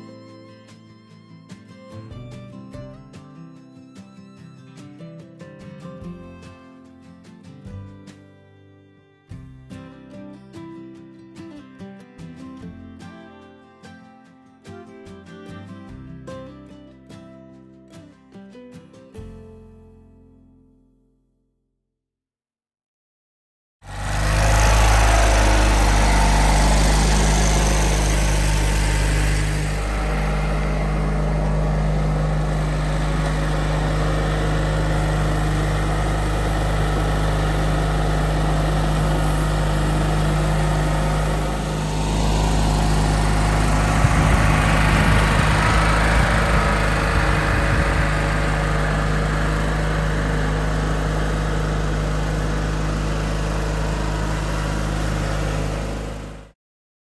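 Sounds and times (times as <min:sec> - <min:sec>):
garden tractor engine running: 0:00.0 - 0:05.0, 0:23.8 - 0:56.5.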